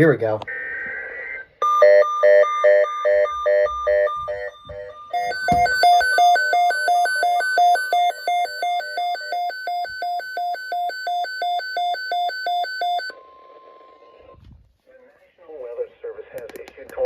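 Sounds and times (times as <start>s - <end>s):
electronic alarm beeping rapidly: 1.6s - 13.2s
faint steady warning tone: 1.6s - 14.4s.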